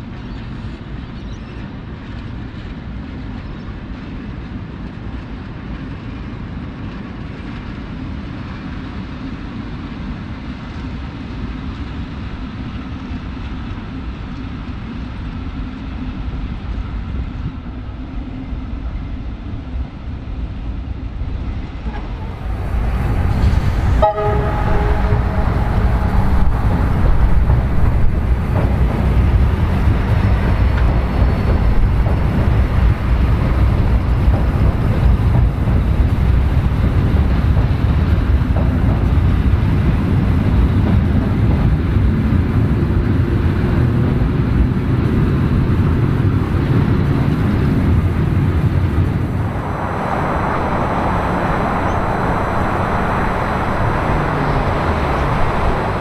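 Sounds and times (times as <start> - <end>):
electric train rumbling over bridge: 0.0 - 56.0
train horn toot: 21.9 - 31.6.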